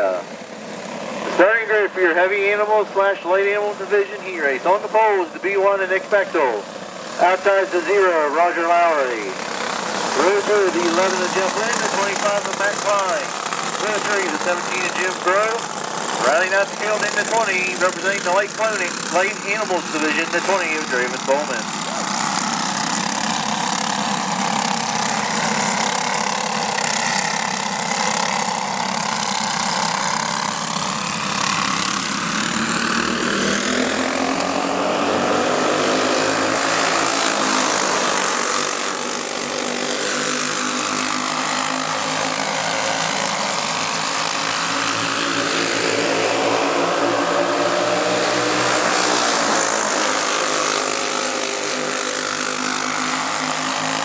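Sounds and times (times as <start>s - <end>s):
go-kart engines revving: 0.0s - 54.0s.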